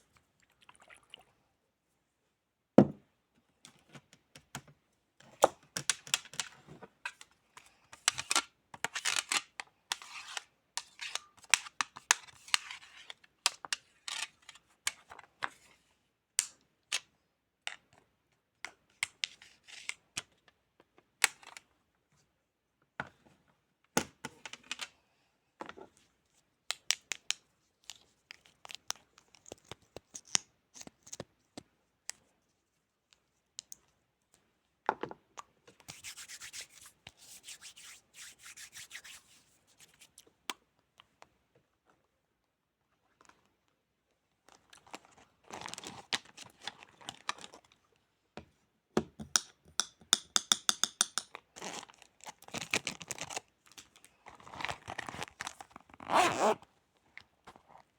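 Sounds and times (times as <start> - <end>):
sharp clicks and taps: 49.0 - 51.3.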